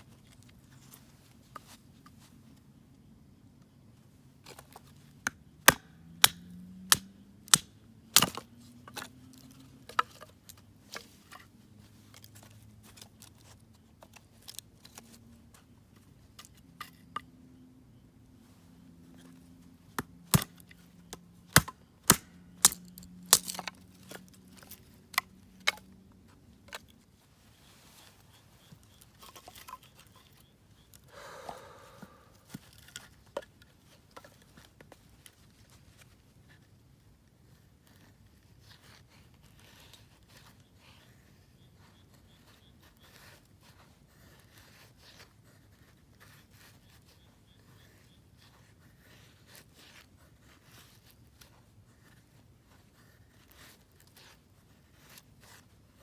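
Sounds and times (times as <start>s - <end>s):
wood cracking and snapping: 21.6s - 23.8s.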